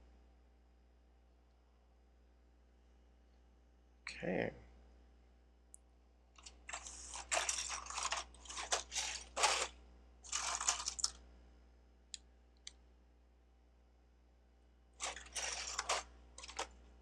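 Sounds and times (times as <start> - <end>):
plastic bricks rattling: 6.4 - 9.7, 10.3 - 11.2, 15.0 - 16.7
plastic pieces clicking: 10.3 - 11.2, 15.0 - 16.7.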